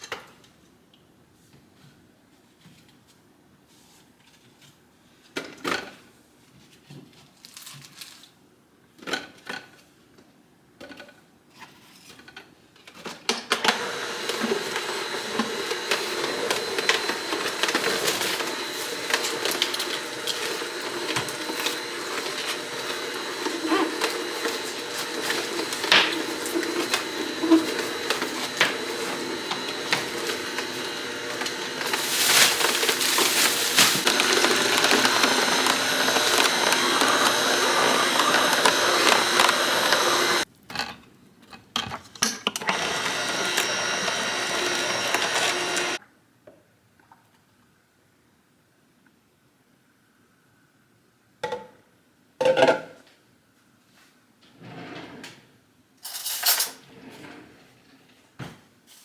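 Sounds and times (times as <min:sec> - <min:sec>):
electric juicer motor whirring: 0:13.6 - 0:40.5, 0:42.6 - 0:46.0.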